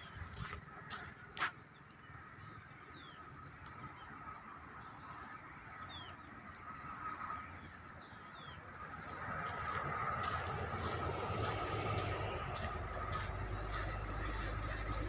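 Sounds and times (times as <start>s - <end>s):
birds chirping: 0.0s - 15.0s
background hum: 6.7s - 15.0s.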